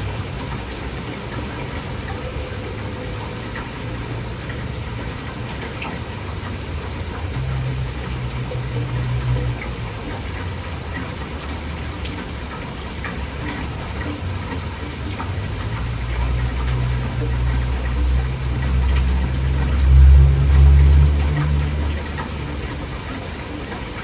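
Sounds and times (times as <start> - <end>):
heavy rain falling: 0.0 - 24.0
low rumble: 17.5 - 23.1.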